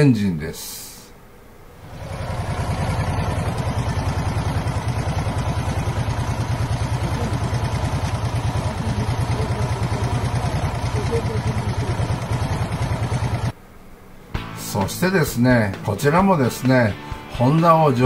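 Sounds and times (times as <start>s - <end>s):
car engine running: 1.8s - 13.6s.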